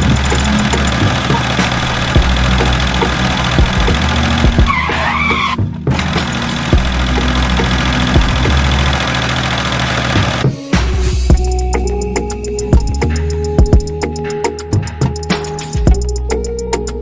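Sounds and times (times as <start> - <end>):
wavering squeal: 0.0 - 9.3.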